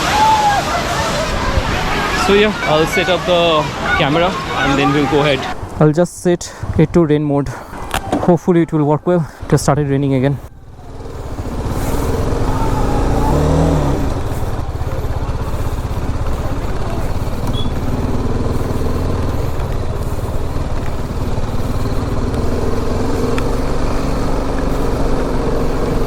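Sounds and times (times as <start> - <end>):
motorcycle engine idling: 10.0 - 26.0.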